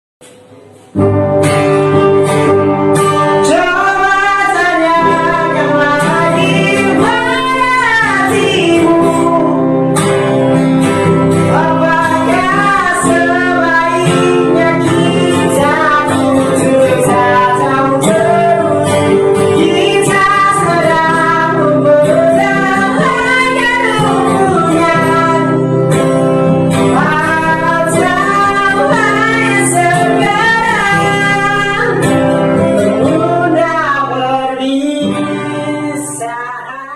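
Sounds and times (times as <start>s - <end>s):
person singing: 2.6s - 10.4s, 11.3s - 36.9s.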